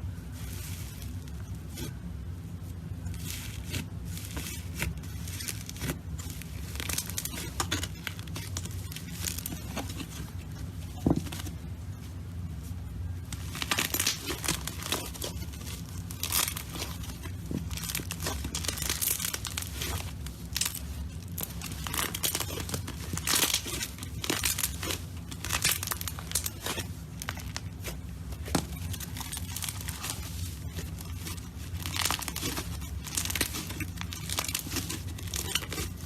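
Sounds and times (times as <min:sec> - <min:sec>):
slime crackling and popping: 0:03.0 - 0:11.5, 0:13.3 - 0:36.0.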